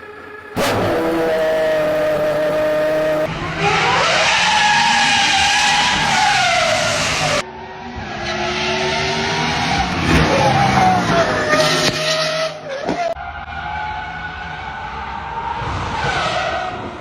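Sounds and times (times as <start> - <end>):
engine exhaust revving: 0.6 - 3.3
second engine revving: 0.6 - 3.3.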